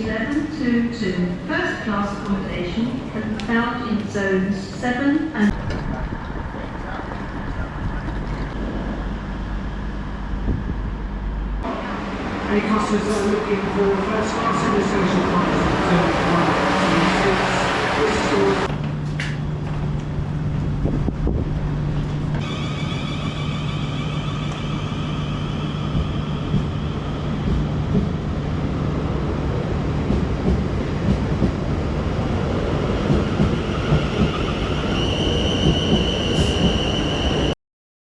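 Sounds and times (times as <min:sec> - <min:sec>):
train wheels rumbling on track: 0:05.4 - 0:37.5.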